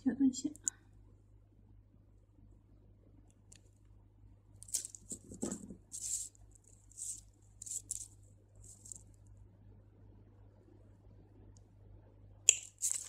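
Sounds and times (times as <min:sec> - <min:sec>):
thread rustling through beads: 0:04.6 - 0:09.3, 0:12.5 - 0:13.0.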